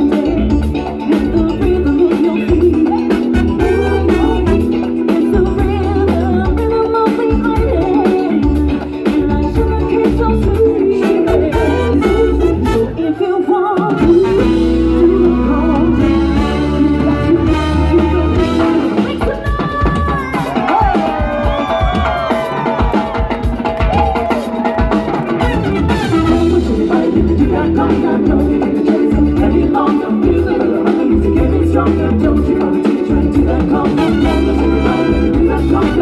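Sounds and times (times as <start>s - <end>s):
latin dance band playing: 0.0s - 36.0s
person singing: 0.0s - 36.0s
horns: 3.1s - 5.3s, 11.2s - 19.6s, 25.2s - 27.2s, 33.8s - 36.0s.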